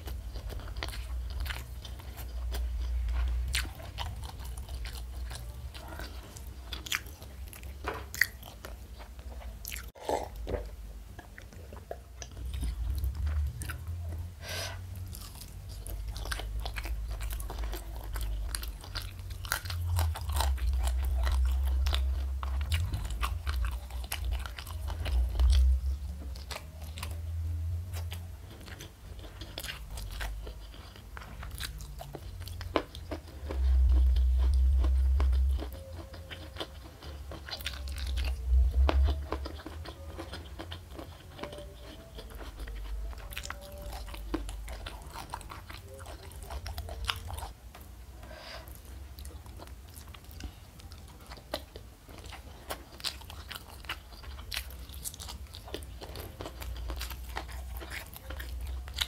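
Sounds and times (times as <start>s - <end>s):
chewing crunchy food: 0.0s - 59.0s
low rumble: 12.2s - 28.4s, 33.4s - 35.7s, 37.9s - 39.5s.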